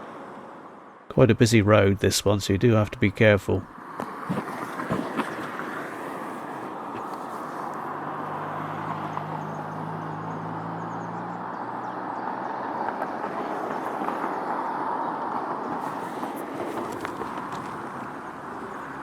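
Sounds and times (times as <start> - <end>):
bicycle tyres rolling: 4.0 - 7.9, 12.5 - 19.0
low vehicle engine hum: 4.4 - 19.0.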